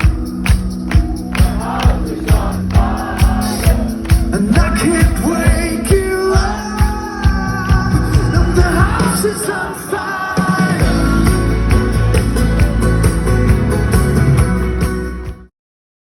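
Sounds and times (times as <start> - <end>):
drum beat thumps: 0.0 - 9.4
live band music: 0.0 - 15.5
person singing: 1.4 - 13.0.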